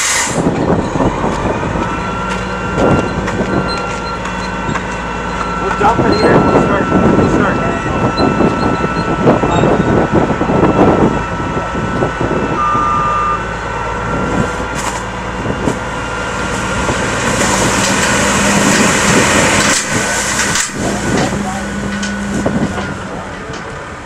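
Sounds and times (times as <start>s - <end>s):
heavy truck engine running: 0.0s - 24.0s
short beep: 12.6s - 13.5s.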